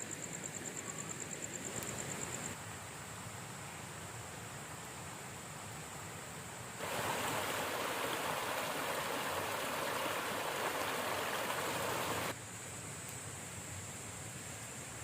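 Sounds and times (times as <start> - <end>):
river water rushing: 6.8 - 12.4.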